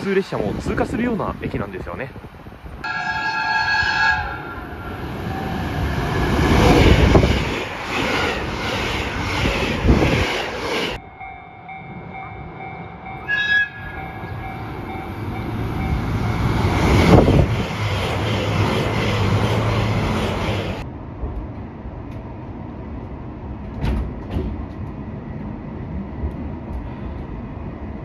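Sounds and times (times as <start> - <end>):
diesel train passing: 0.0 - 28.0
train horn blast: 2.8 - 4.8, 13.2 - 14.3.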